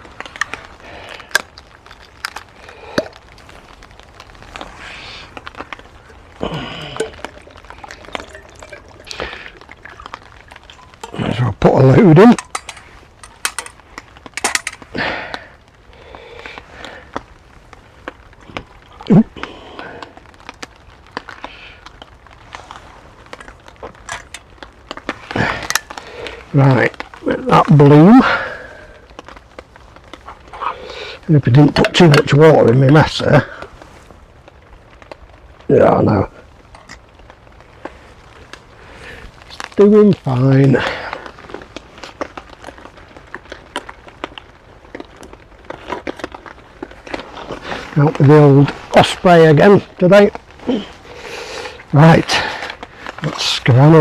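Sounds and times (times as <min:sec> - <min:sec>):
heavy rain hissing and dripping: 0:00.0 - 0:54.0
rustle: 0:00.0 - 0:54.0
sharp drops tapping: 0:06.5 - 0:10.1, 0:12.3 - 0:13.8, 0:14.4 - 0:14.8
sharp clicks and knocks: 0:12.3 - 0:13.8, 0:14.4 - 0:14.8, 0:24.1 - 0:24.4, 0:25.6 - 0:25.9.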